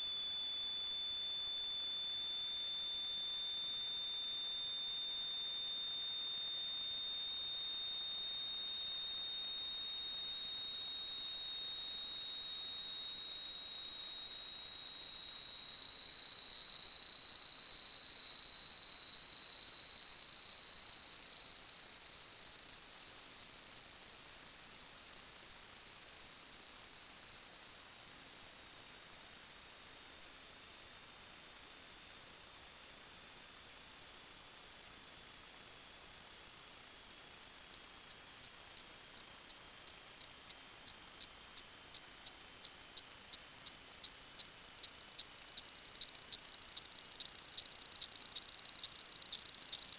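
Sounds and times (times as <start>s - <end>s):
high-pitched electronic whine: 0.0s - 49.9s.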